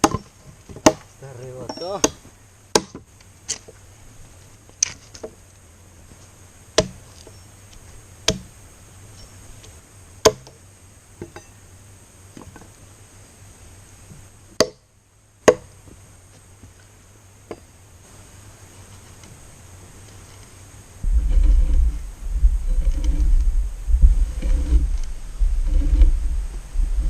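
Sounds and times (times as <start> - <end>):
tool chopping wood: 0.0 - 1.1, 1.8 - 3.0, 6.8 - 7.0, 8.3 - 8.5, 10.2 - 10.6, 14.6 - 14.8, 15.4 - 15.7.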